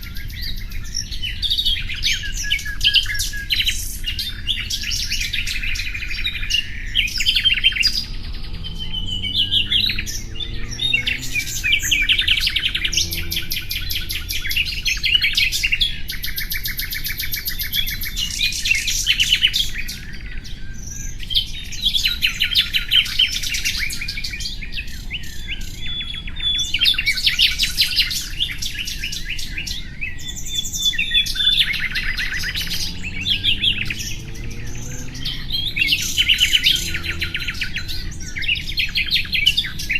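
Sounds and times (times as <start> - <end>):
songbird trilling and chirping: 0.0 - 39.9.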